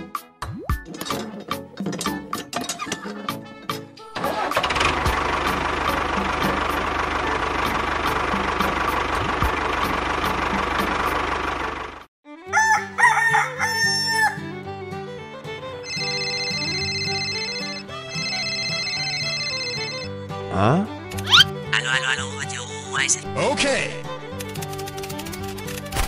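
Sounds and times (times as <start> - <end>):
light music: 0.0 - 11.6, 12.2 - 26.0
tractor engine running: 3.0 - 12.1, 24.0 - 26.0
rooster crowing: 12.5 - 14.5.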